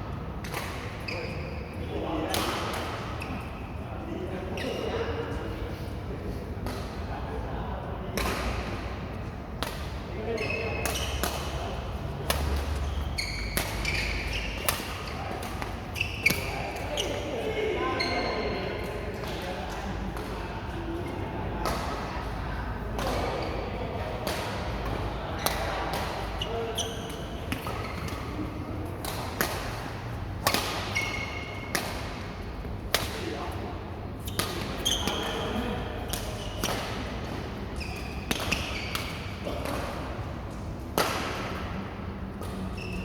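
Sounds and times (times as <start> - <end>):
shoe squeaks on court floor: 1.1 - 1.8, 10.3 - 11.2, 12.4 - 17.3, 17.9 - 18.6, 25.4 - 28.3, 30.8 - 31.7, 34.2 - 36.7, 37.8 - 39.3, 42.5 - 43.0
racket hitting shuttlecock: 10.8 - 16.9, 24.2 - 33.4, 34.2 - 37.5, 38.1 - 40.2, 40.9 - 41.7.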